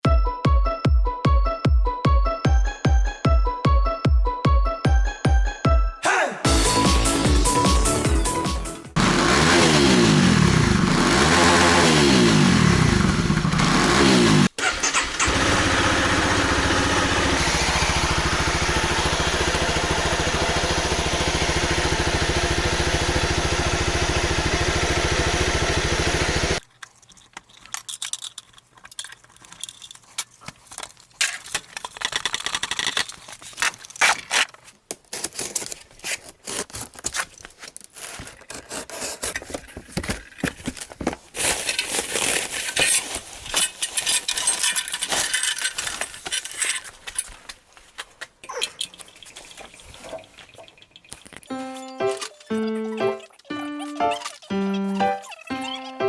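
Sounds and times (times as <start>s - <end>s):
motorcycle engine revving: 9.0s - 26.6s.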